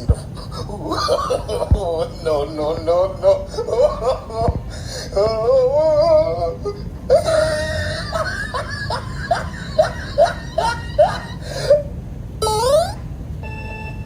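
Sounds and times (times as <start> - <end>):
upward-sliding crying notes: 0.0 - 13.0
warbling whimpering sound effect: 0.0 - 13.0.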